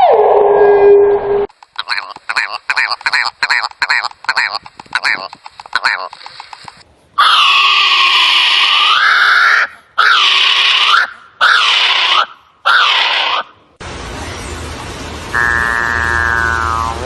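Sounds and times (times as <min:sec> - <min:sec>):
drawn-out buzzy bird call: 0:01.6 - 0:13.5, 0:15.4 - 0:17.0
harsh bird screeches: 0:07.2 - 0:13.5.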